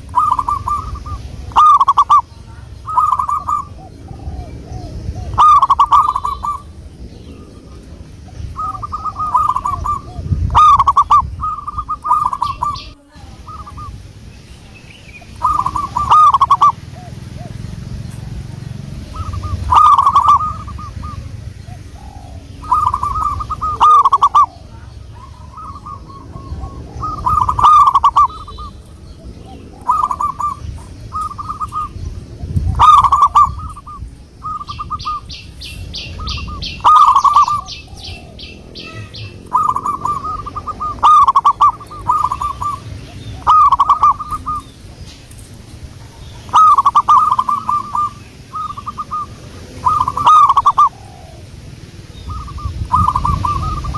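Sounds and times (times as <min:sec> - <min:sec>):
small bird trilling: 0:00.0 - 0:07.8, 0:08.4 - 0:44.8, 0:46.1 - 0:51.5, 0:52.2 - 0:53.9
dove cooing: 0:00.0 - 0:53.9.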